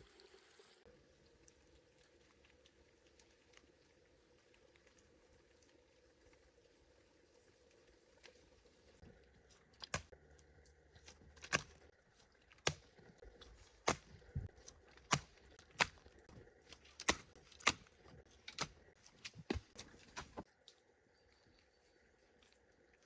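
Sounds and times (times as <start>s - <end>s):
hand tool chopping wood: 11.1s - 11.8s, 12.6s - 20.4s.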